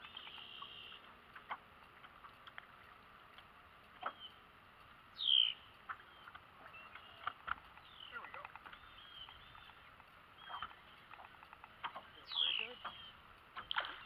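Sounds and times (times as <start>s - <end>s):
faint clicks: 0.0s - 14.0s
high bird calls: 4.0s - 4.4s, 5.1s - 14.0s.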